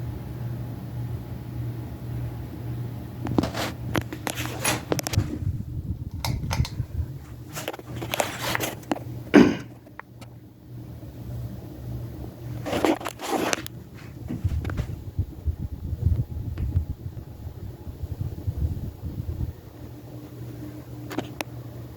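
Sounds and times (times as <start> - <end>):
ceiling fan humming: 0.0 - 21.9
close-up scraping and crackling: 3.2 - 5.2, 7.3 - 9.1, 12.5 - 14.9, 21.0 - 21.4.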